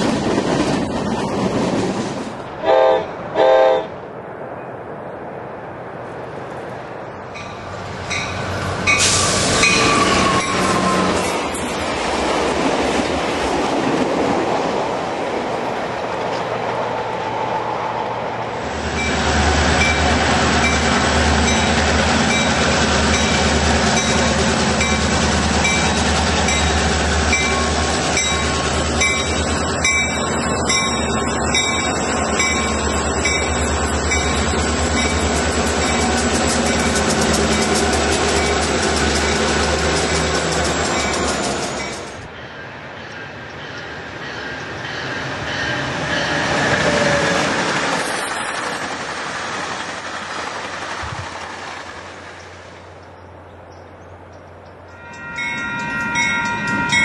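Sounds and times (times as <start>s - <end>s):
train rumbling past: 0.0s - 57.0s
train wheels squealing: 8.9s - 11.4s, 27.3s - 48.8s
locomotive engines throbbing: 18.6s - 42.3s.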